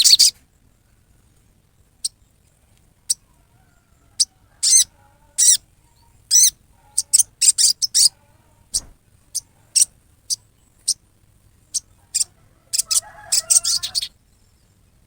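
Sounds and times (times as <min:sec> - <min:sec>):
harsh rasping bird calls: 0:00.0 - 0:00.4, 0:03.0 - 0:11.1, 0:11.7 - 0:14.2.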